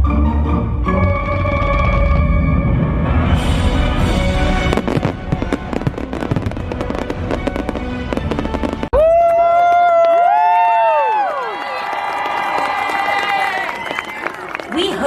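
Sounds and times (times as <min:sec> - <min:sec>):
fireworks crackling: 0:03.6 - 0:09.0.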